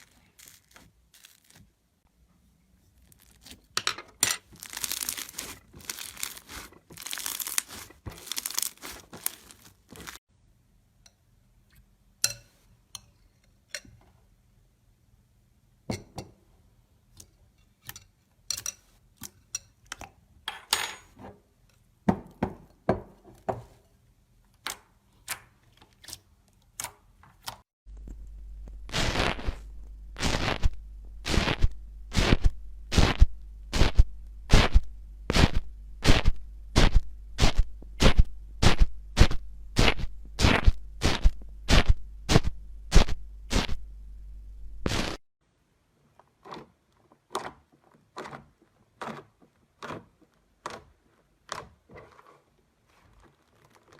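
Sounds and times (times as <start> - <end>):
low steady hum: 27.9 - 45.1.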